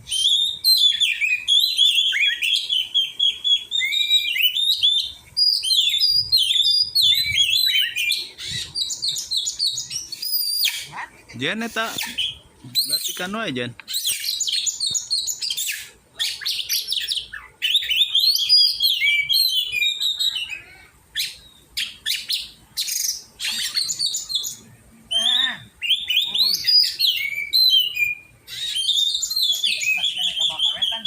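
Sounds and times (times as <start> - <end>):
bird singing chirps and whistles: 0.0 - 10.9, 11.7 - 31.0.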